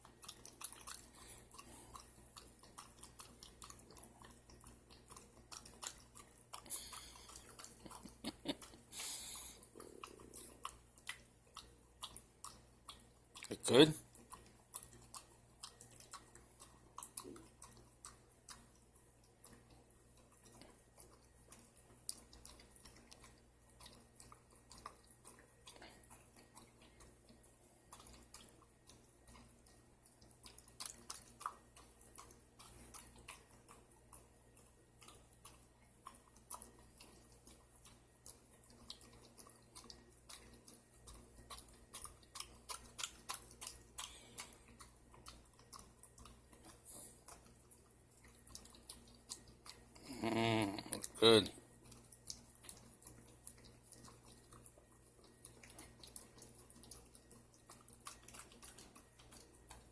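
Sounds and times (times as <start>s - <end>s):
pet licking and smacking: 0.0s - 59.9s.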